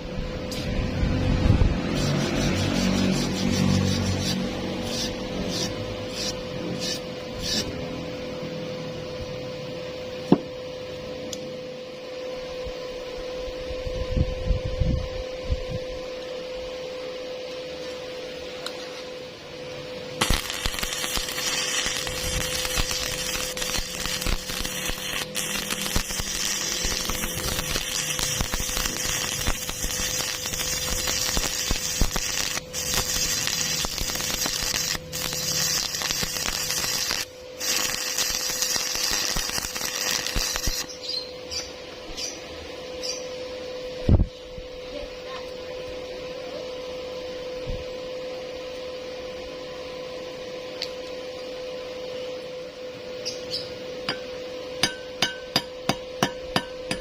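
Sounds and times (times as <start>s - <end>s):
arc welding crackling: 0.0s - 8.1s, 20.1s - 41.7s
steady hum: 0.0s - 57.0s.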